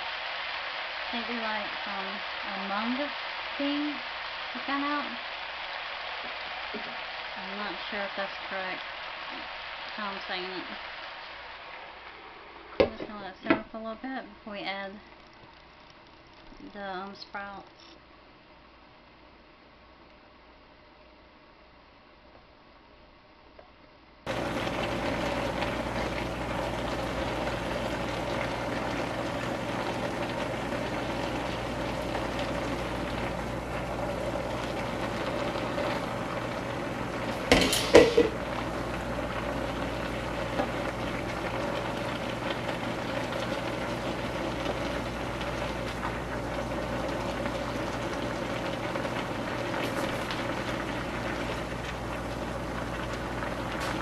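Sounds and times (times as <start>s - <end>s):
food sizzling in a wok: 0.0s - 14.1s, 24.3s - 54.0s.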